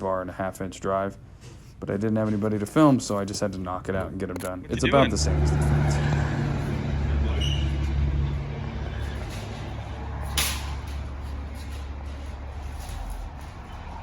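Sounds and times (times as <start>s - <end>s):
vehicle engine humming: 4.6s - 14.0s.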